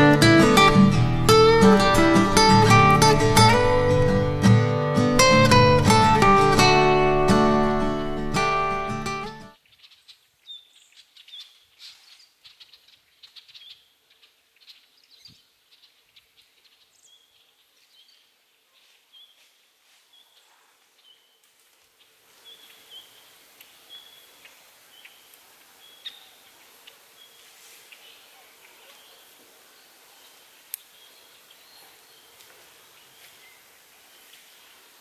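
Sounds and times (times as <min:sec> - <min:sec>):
background hiss: 0:00.0 - 0:35.0
bird chirping: 0:05.2 - 0:19.4, 0:22.0 - 0:34.7
faint ticks and rustles: 0:09.6 - 0:35.0.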